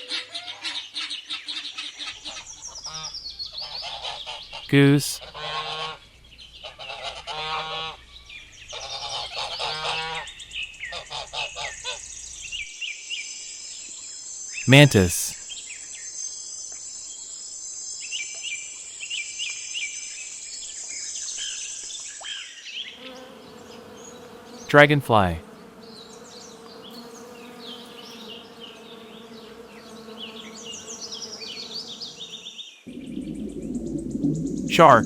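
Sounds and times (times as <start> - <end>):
person speaking: 4.7 - 5.2, 14.7 - 15.3, 24.7 - 25.4, 34.7 - 35.0.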